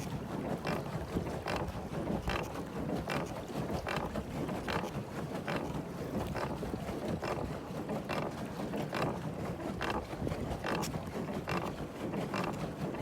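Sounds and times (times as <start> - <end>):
water lapping against boat: 0.0 - 13.0
wind rumbling on microphone: 9.5 - 11.8.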